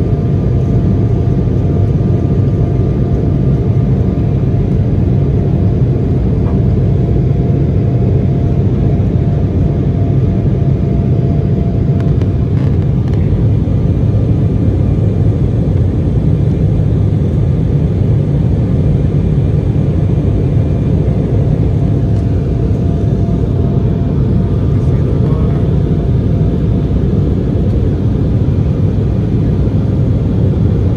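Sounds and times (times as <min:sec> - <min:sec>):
faint steady whine: 0:00.0 - 0:30.9
jet engine and airflow rumble: 0:00.0 - 0:30.9.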